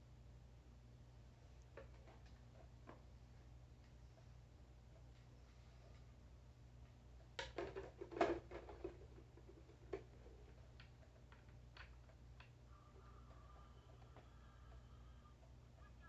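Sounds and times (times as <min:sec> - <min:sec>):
faint electronic tone: 0:12.8 - 0:16.0.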